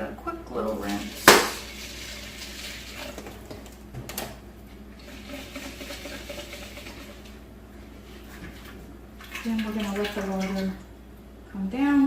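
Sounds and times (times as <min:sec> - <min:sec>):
tap water running and splashing: 0:00.6 - 0:03.8, 0:05.0 - 0:07.4, 0:08.1 - 0:10.9.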